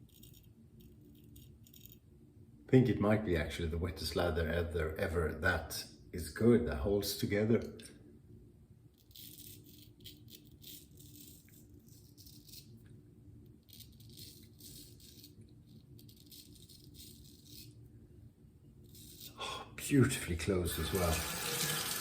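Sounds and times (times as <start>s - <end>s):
razor scraping stubble: 0.0s - 2.0s, 9.0s - 12.8s, 13.6s - 17.8s, 18.8s - 19.4s.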